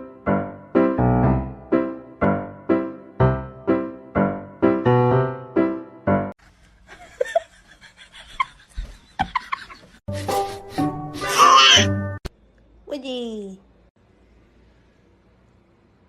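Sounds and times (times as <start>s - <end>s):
piano repeated notes: 0.0s - 6.3s.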